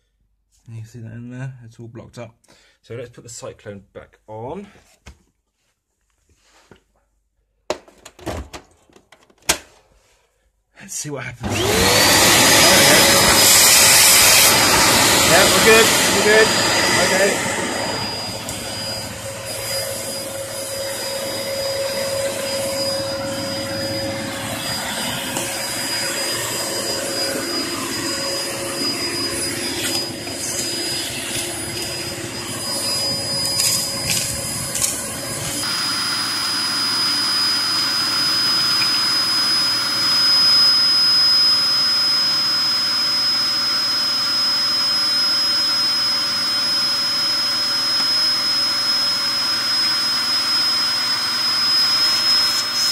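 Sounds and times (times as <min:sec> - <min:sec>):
vacuum cleaner motor whine: 0:11.4 - 0:52.9.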